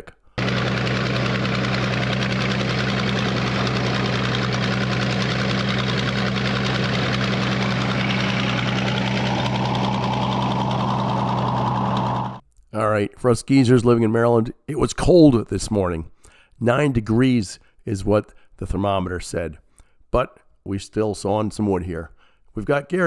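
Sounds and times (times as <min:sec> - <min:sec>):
engine running steadily: 0:00.0 - 0:12.4
circular sawmill: 0:00.4 - 0:12.4.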